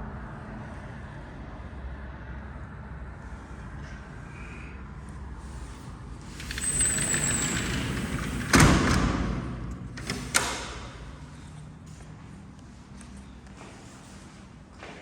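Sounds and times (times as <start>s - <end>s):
sliding door squeaking on track: 6.2s - 11.4s
door banging shut: 6.4s - 11.2s.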